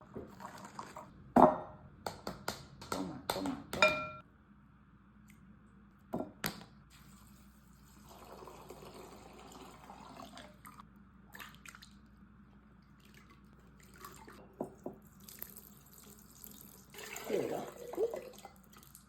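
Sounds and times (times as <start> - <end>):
soft trickling liquid: 7.0 - 19.0.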